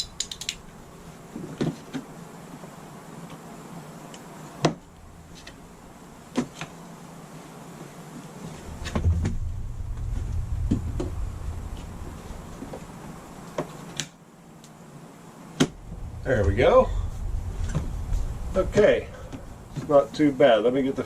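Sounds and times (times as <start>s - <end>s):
low rubbing rumble: 4.9s - 5.9s, 8.4s - 13.6s, 15.6s - 21.0s.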